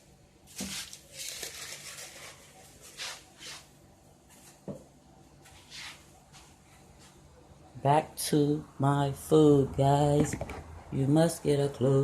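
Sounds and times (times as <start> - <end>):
rustling: 0.5 - 3.7.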